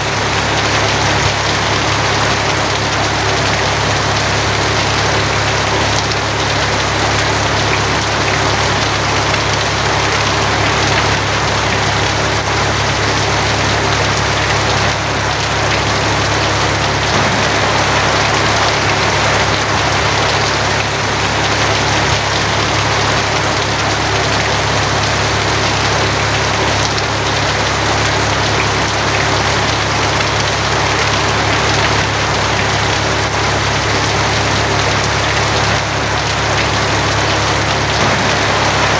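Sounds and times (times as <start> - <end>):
heavy rain on a tin roof: 0.0 - 38.9
low rumble: 17.1 - 21.4, 38.0 - 38.9.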